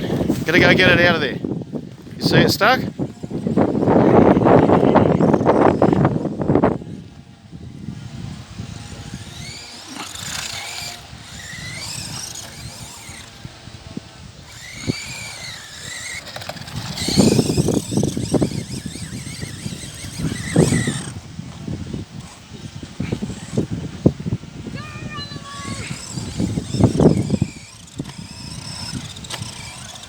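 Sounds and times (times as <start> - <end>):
electric toy truck motors whining: 0.0 - 30.0
rough scraping: 8.8 - 13.5, 14.4 - 21.2, 25.5 - 30.0.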